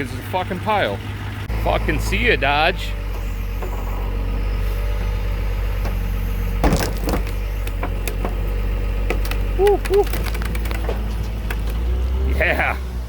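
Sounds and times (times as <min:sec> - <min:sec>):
engine idling: 0:00.0 - 0:13.0
clank: 0:06.6 - 0:08.4.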